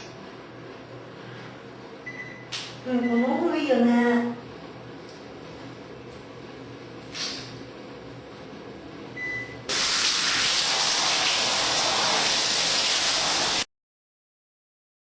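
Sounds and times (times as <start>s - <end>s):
hiss of spraying water: 9.7s - 13.7s.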